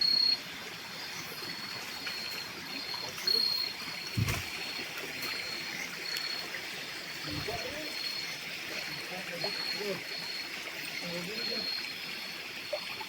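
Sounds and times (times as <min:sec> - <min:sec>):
insects chirping in trills: 0:00.0 - 0:13.0
low thump: 0:04.2 - 0:04.6.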